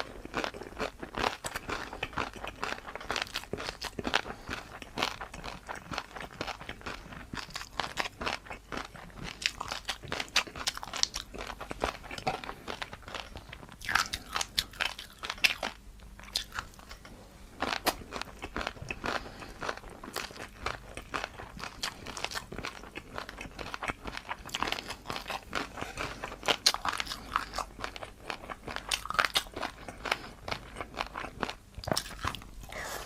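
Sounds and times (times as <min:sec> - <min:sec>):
crunching crispy noodles: 0:17.6 - 0:32.8.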